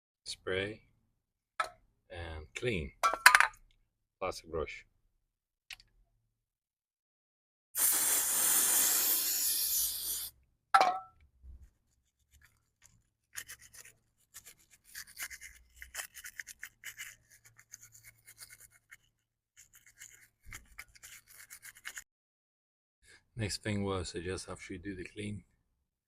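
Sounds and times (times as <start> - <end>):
aerosol spray hiss: 7.8 - 10.3
plastic brush scrubbing: 11.9 - 22.0.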